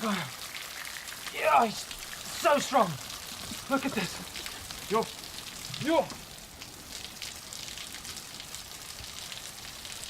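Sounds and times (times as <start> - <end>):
man exclaiming: 1.3 - 3.0, 5.7 - 6.1.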